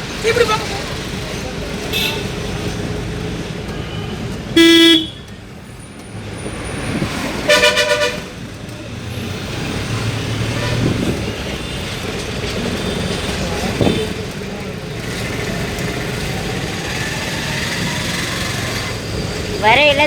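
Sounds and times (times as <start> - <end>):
road and engine noise: 0.0 - 20.0
vehicle horn blast: 1.9 - 2.4, 3.7 - 5.3, 7.5 - 8.3
higher-pitched horn toots: 4.6 - 5.2.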